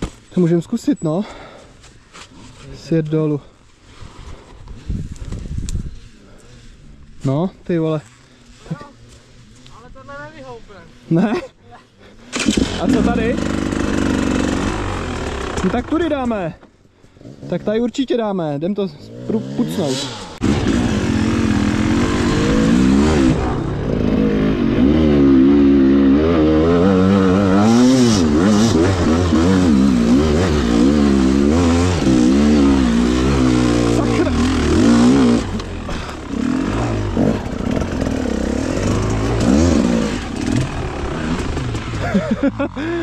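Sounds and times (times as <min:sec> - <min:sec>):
motorcycle engine revving hard: 0:12.3 - 0:16.0, 0:19.1 - 0:43.0.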